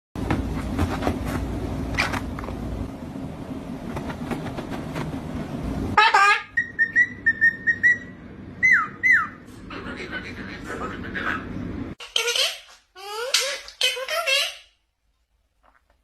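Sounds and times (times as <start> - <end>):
bird whistling: 6.0 - 9.5.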